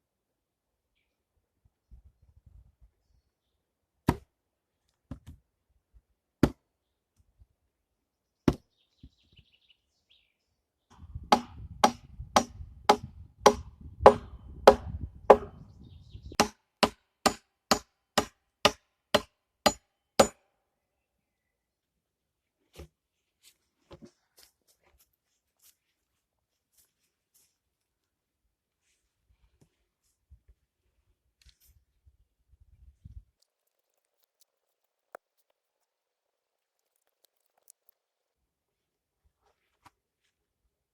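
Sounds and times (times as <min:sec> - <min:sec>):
chopping blows on wood: 0:11.3 - 0:15.6.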